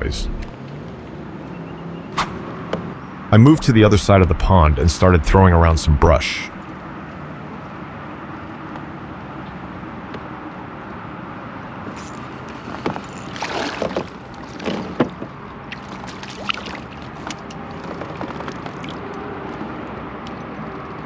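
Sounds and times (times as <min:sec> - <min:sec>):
distant road traffic: 0:00.0 - 0:21.0
kayak splashing and knocking: 0:12.8 - 0:18.9.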